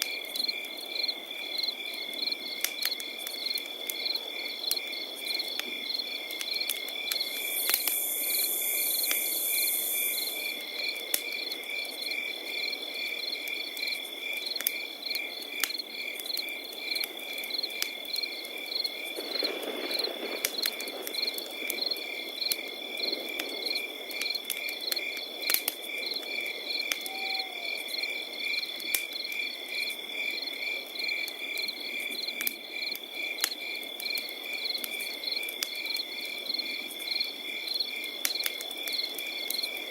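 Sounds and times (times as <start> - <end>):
campfire crackling: 0.0 - 39.9
crickets chirping: 0.1 - 39.9
high-pitched insect trill: 7.2 - 10.6.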